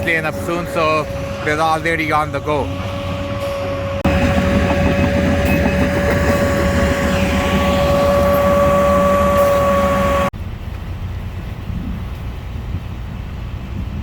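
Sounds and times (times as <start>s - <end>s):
heavy machinery engine whining: 0.0s - 10.3s.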